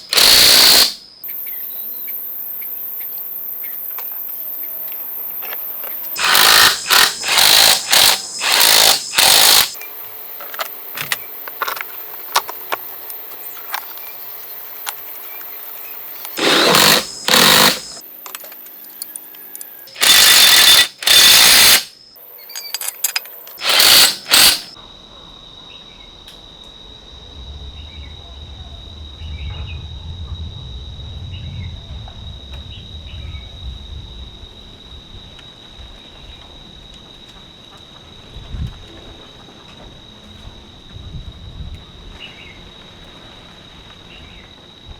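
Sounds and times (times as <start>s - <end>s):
power tool bursts: 0.0s - 1.0s, 6.2s - 9.8s, 16.3s - 18.0s, 19.9s - 21.9s, 23.6s - 24.8s
light clicks and clinks: 22.4s - 23.6s.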